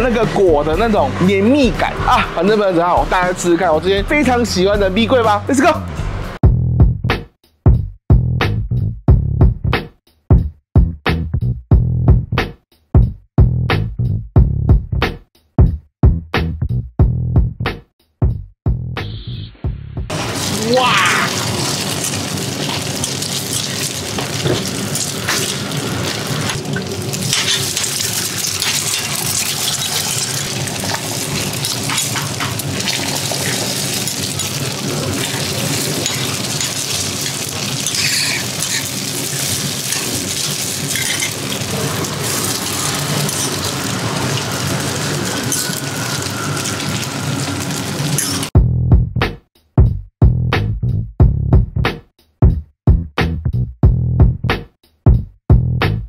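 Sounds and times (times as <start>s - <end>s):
food sizzling on a griddle: 20.1s - 48.5s
metal spatula scraping griddle: 27.2s - 44.0s.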